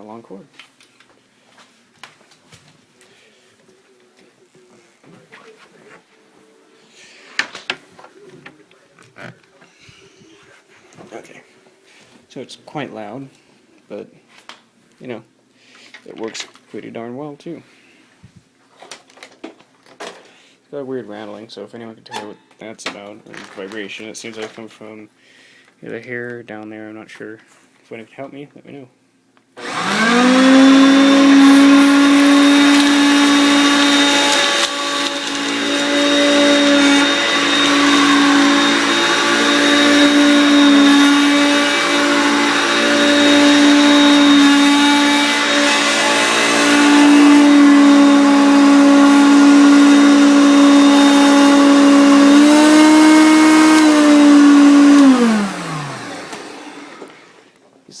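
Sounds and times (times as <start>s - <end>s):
upright vacuum cleaner whining: 29.6s - 57.6s.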